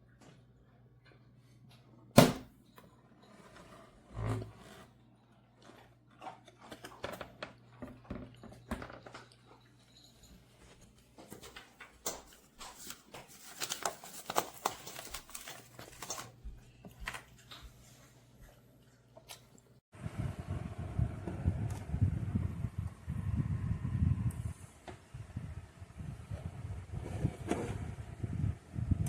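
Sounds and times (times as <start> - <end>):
small things clicking and rustling: 5.5 - 17.8.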